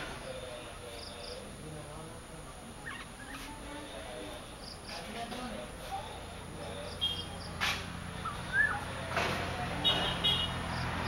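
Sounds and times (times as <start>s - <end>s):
birds chirping: 0.0s - 1.8s, 2.7s - 5.1s, 6.6s - 9.1s.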